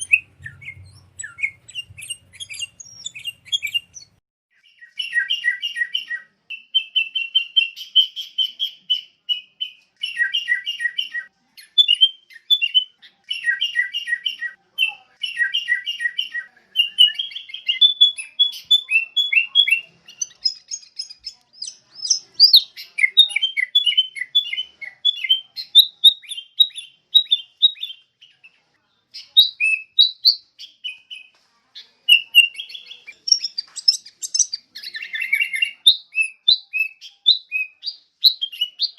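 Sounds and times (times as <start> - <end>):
bulbul chattering chirps: 0.0 - 4.2, 11.6 - 28.4, 32.1 - 38.9.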